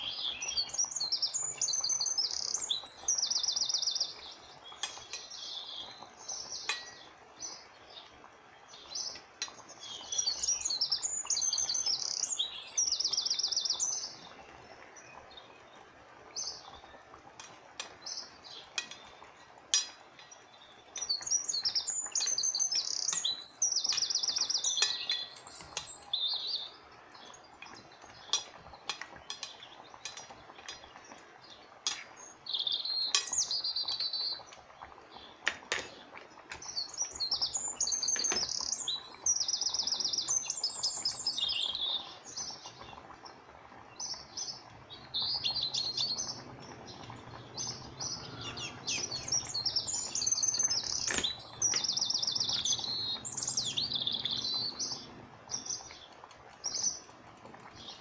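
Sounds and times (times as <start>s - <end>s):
small birds trilling: 0.0s - 58.0s
utensils knocking against pot: 6.7s - 7.0s, 19.7s - 20.1s, 23.1s - 25.9s, 28.3s - 30.9s, 31.8s - 32.1s, 35.5s - 36.0s, 51.0s - 51.9s.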